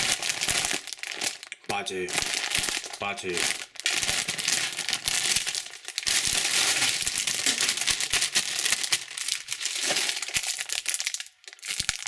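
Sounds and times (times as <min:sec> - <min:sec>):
plastic wrappers crinkling: 0:00.0 - 0:12.0.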